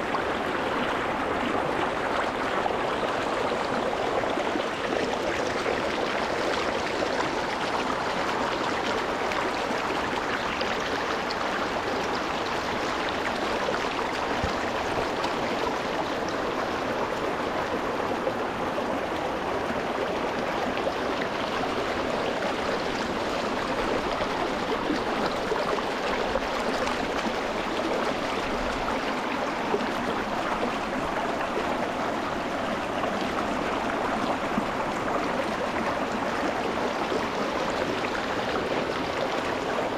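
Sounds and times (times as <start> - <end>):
stream splashing over stones: 19.2 - 39.9.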